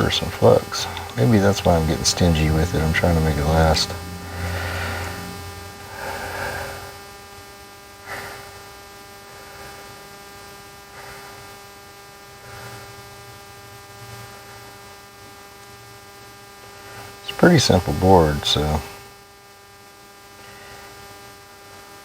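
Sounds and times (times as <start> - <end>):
electrical hum: 0.0 - 22.0
faint clicks: 0.9 - 1.2.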